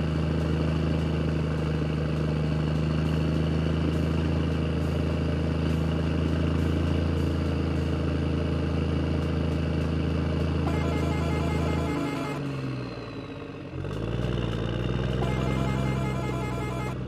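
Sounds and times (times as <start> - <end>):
heavy vehicle engine idling: 0.0 - 17.0.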